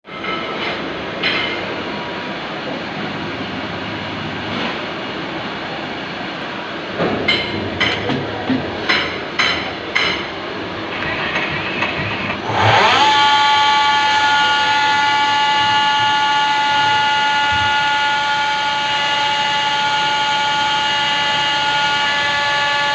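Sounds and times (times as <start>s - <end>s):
lathe running: 9.2s - 22.9s.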